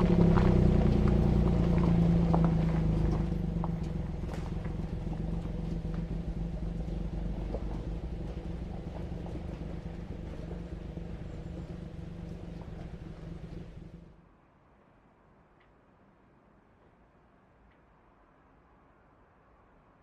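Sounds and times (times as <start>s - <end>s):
car engine running: 0.0s - 14.2s.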